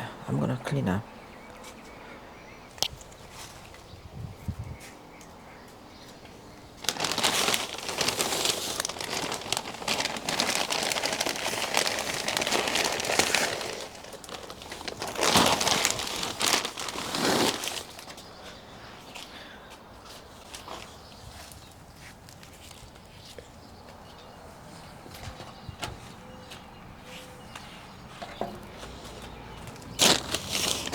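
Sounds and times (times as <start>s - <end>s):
dry plant debris crackling: 6.5s - 18.4s, 29.6s - 30.9s.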